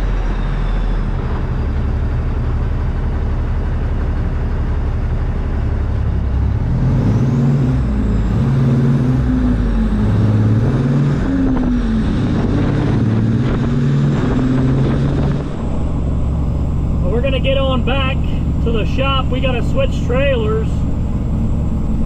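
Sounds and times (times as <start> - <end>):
diesel truck engine pulling away: 0.0 - 22.0.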